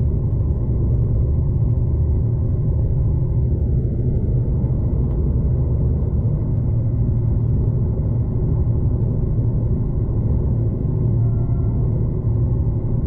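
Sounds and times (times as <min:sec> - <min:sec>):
train rumbling from inside carriage: 0:00.0 - 0:13.0.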